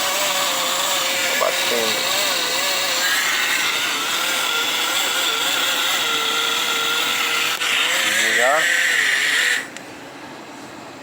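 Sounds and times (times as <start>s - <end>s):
mini blender motor humming: 0.0s - 9.7s.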